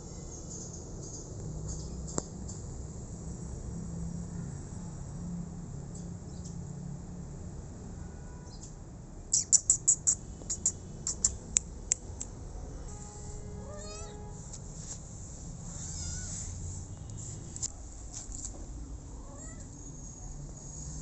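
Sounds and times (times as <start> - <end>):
bird chirping: 8.5 - 11.4.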